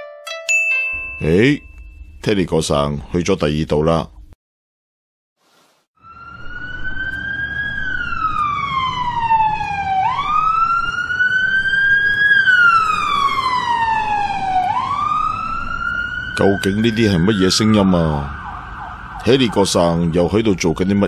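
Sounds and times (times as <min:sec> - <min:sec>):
ambulance siren wailing: 0:06.0 - 0:21.0.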